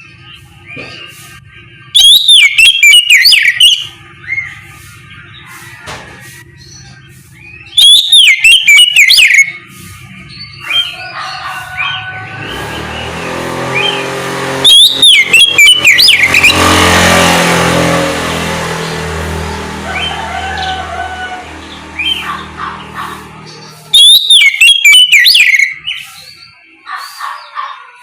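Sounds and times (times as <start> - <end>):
bird singing whistled notes: 1.8 - 5.4, 6.5 - 11.0, 14.6 - 16.6, 23.5 - 27.6.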